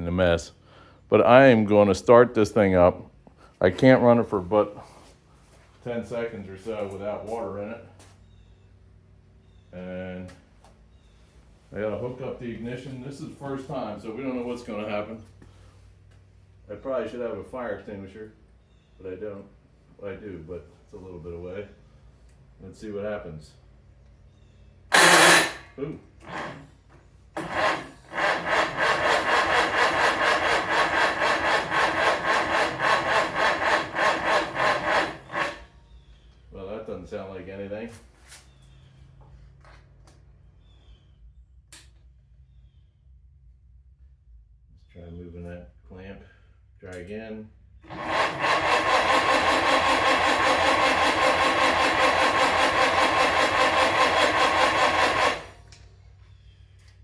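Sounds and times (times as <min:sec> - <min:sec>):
engine cranking by starter: 0:24.9 - 0:36.0, 0:47.8 - 0:56.0.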